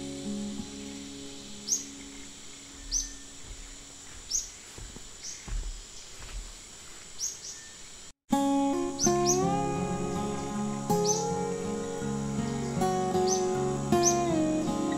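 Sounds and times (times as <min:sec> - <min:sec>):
insect drone: 0:00.0 - 0:14.9
bird chirps dropping in pitch: 0:01.6 - 0:03.4
soft low thuds: 0:02.7 - 0:07.1.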